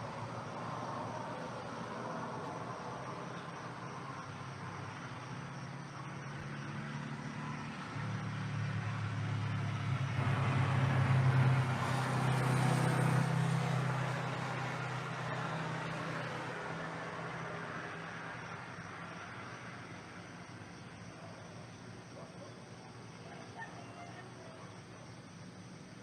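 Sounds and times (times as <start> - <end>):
vehicle engine hum: 0.0 - 20.3.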